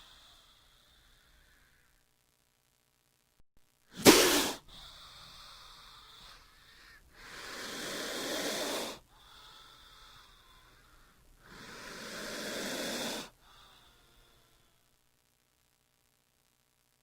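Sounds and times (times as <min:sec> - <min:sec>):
snake hissing: 0:03.9 - 0:10.8, 0:11.4 - 0:14.3.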